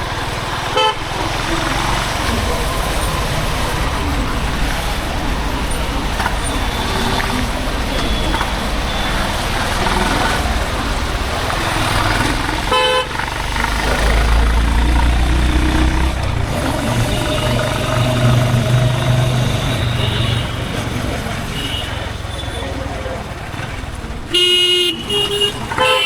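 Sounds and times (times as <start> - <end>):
motorcycle engine and exhaust: 0.0 - 26.0
short vehicle horn toot: 24.3 - 26.0.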